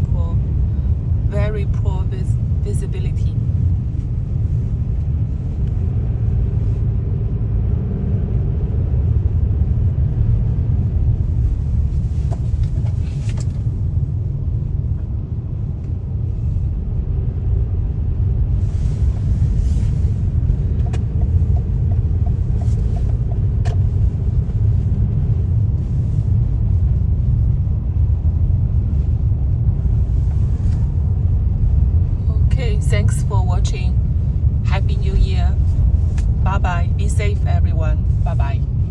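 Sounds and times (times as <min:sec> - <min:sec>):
road and tyre rumble: 0:00.0 - 0:38.9.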